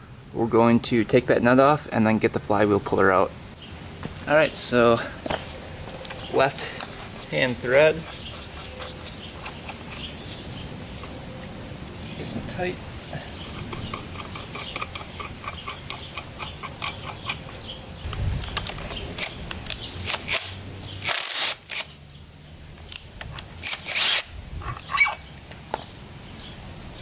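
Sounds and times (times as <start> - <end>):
hand ratchet clicking: 13.4 - 21.9, 23.2 - 24.4.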